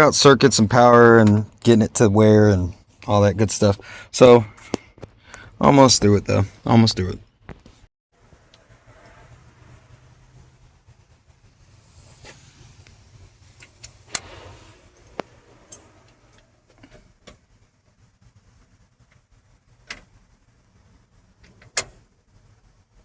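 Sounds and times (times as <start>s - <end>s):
short rustle: 10.9s - 17.2s.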